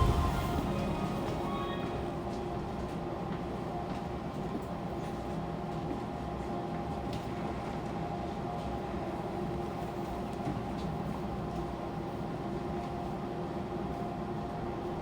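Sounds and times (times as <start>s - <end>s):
train equipment humming: 0.0s - 3.8s.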